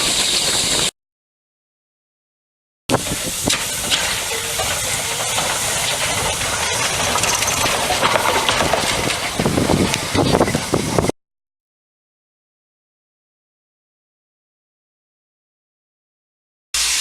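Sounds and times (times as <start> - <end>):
steam hissing: 0.0 - 0.9, 2.9 - 11.1, 16.8 - 17.0
locomotive clicks and knocks: 2.9 - 11.1.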